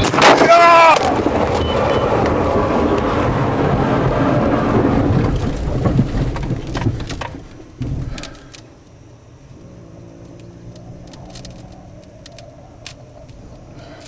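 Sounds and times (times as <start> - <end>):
loud rain: 0.0 - 8.7
thunder rumbling and cracking: 0.0 - 14.0.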